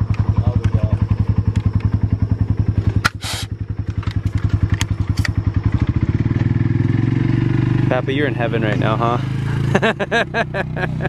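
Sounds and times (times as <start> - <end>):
helicopter rotor beating: 0.0 - 11.0.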